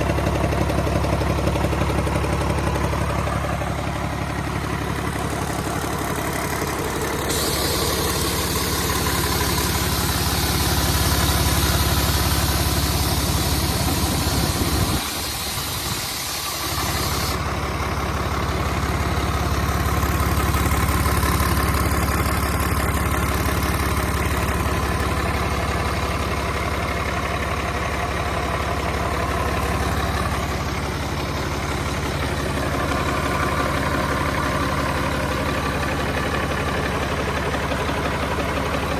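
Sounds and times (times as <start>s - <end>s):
diesel engine running: 0.0s - 38.9s
high hiss: 7.0s - 17.4s.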